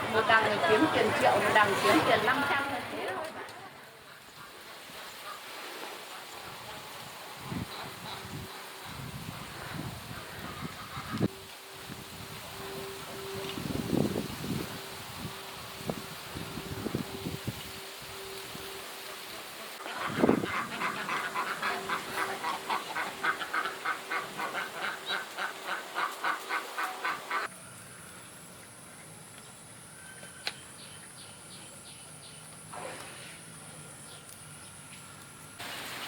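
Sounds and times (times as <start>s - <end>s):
honking animal calls: 19.8s - 27.5s.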